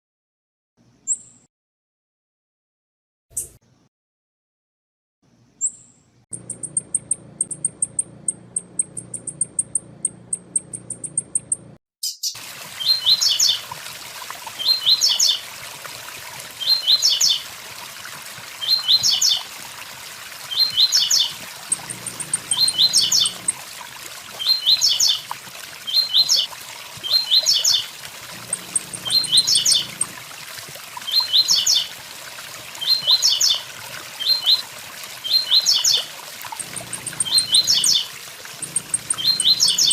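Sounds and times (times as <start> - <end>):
bird song: 1.0 - 1.5, 5.3 - 13.6, 14.6 - 15.4, 16.6 - 17.4, 18.6 - 19.5, 20.5 - 23.6, 24.4 - 25.2, 25.8 - 30.2, 31.0 - 31.9, 32.8 - 33.6, 34.2 - 34.6, 35.2 - 39.9
high dry ticks: 6.3 - 11.8, 36.5 - 39.9.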